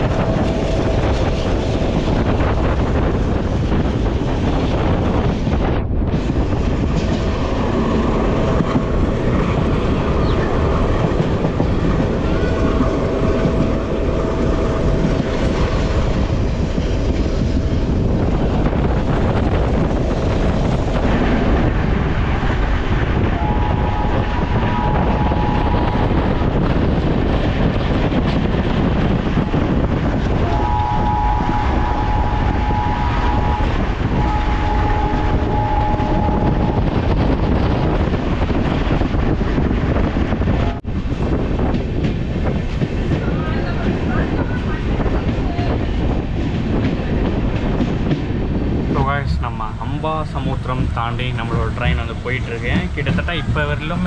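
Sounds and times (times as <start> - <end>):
train wheels rumbling on rails: 0.0 - 54.0
two-tone train horn blasts: 23.2 - 26.2, 30.4 - 37.1.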